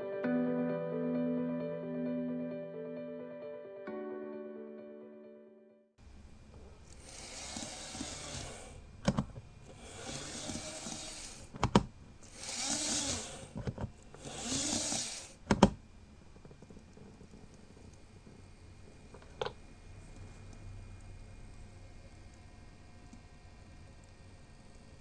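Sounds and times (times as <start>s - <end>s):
model train cars clicking: 6.6s - 15.6s.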